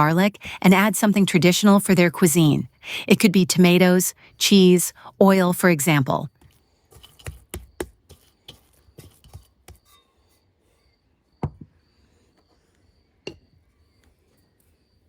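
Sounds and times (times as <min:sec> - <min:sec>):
cricket chirping: 0:06.3 - 0:15.0
knocks from kitchen work: 0:11.4 - 0:11.7.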